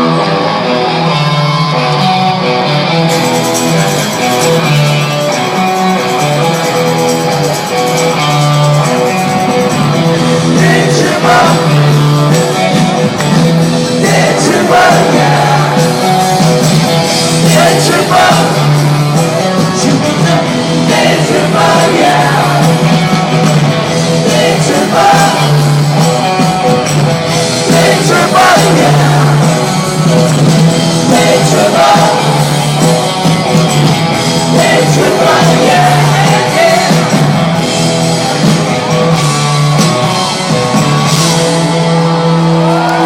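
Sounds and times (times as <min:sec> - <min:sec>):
live rock band playing: 0:00.0 - 0:43.0
lead vocal singing: 0:10.2 - 0:12.8, 0:13.6 - 0:26.4, 0:27.3 - 0:33.1, 0:34.2 - 0:37.6.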